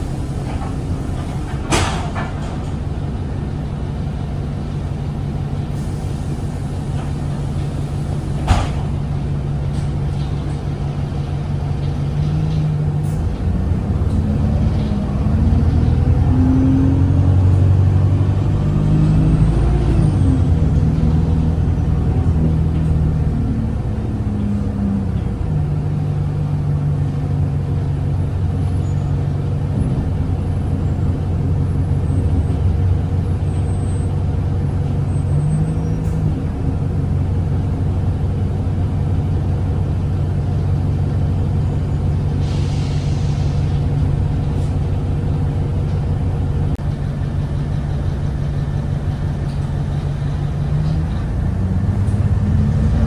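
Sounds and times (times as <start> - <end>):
bus diesel engine droning: 0.0 - 53.0
air hiss: 42.4 - 44.8.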